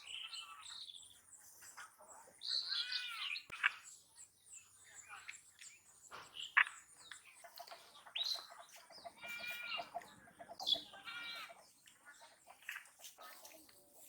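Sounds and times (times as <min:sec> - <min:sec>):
birds chirping: 0:00.0 - 0:14.0
long even-pitched bird calls: 0:02.4 - 0:11.7.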